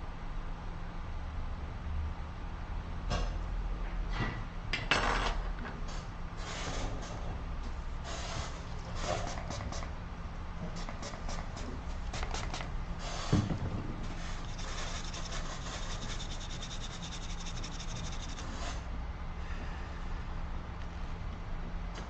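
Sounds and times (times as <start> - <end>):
scraping resin off circuit board: 14.2 - 18.8.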